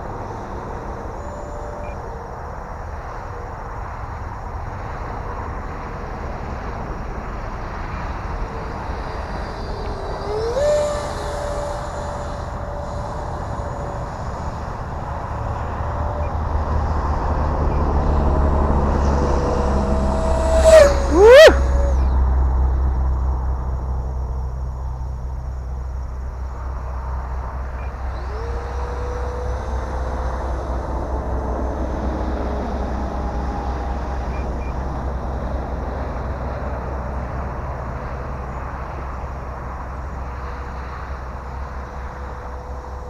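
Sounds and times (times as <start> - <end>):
model jet fan whining: 0.0 - 43.0
low rumble: 8.1 - 36.7.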